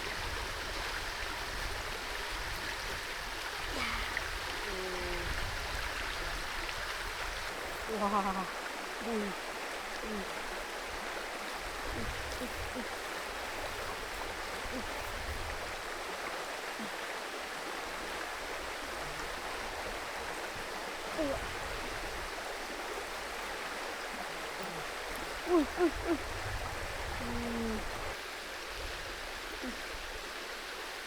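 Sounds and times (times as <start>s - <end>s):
creek water running: 0.0s - 31.0s.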